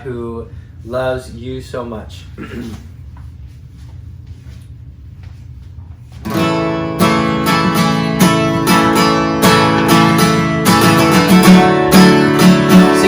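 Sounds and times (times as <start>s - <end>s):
strummed acoustic guitar: 6.2s - 13.0s.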